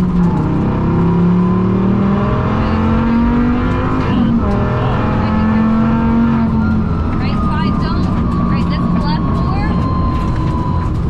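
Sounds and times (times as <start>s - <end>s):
rally car engine at full throttle: 0.0s - 11.0s.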